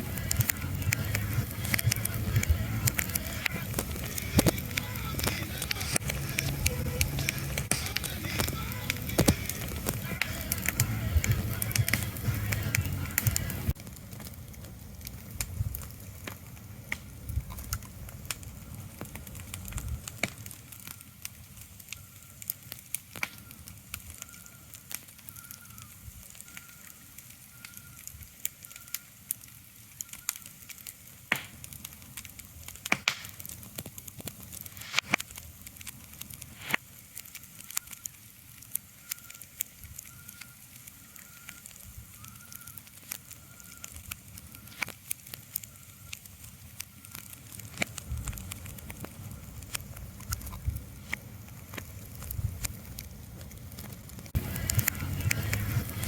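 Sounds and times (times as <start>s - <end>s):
sharp crackles and pops: 0.0s - 56.0s
low rumble: 52.2s - 56.0s.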